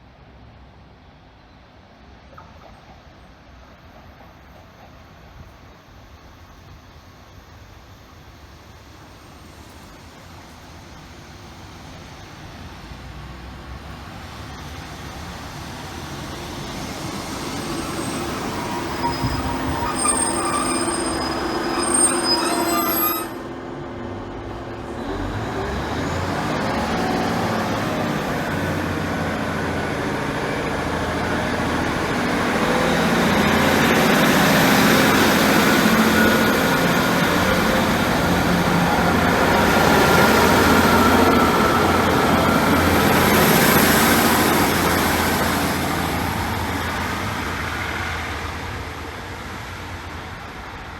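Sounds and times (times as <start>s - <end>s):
train rumbling: 0.0s - 50.9s
train engine whine: 2.8s - 50.9s
train wheel squeal: 16.2s - 23.6s, 30.4s - 48.2s.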